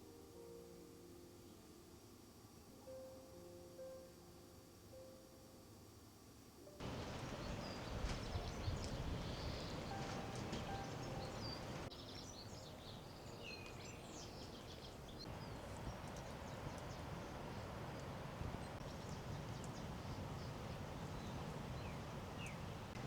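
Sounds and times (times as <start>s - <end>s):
outdoor background hiss: 0.0s - 23.0s
small birds chirping: 6.8s - 23.0s.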